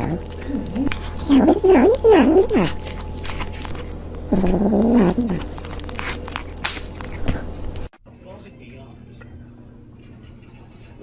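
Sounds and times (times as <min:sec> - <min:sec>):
cat calling: 0:04.3 - 0:05.6.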